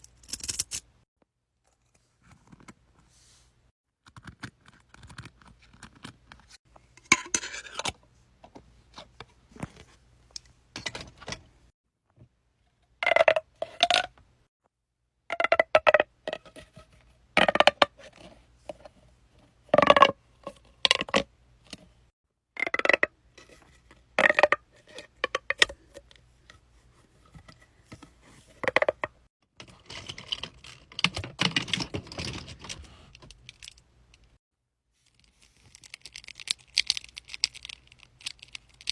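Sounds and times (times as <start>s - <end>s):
small objects clicking and tapping: 35.0s - 38.9s.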